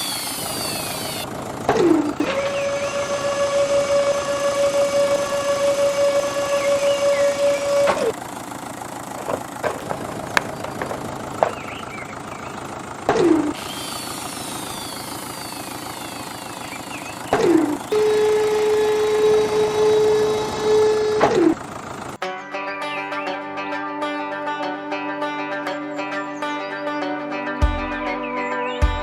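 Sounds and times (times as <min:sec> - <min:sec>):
machinery whining: 0:00.0 - 0:22.1
clatter with sharp knocks: 0:08.9 - 0:13.6.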